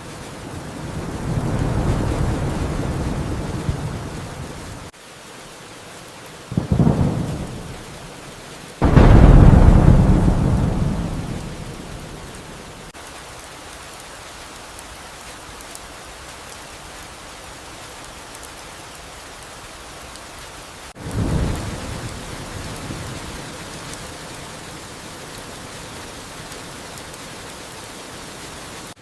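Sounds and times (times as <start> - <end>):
thunder rumbling: 0.0 - 4.9, 6.6 - 8.2, 8.8 - 12.9, 21.0 - 27.5
steady rain: 0.0 - 29.0.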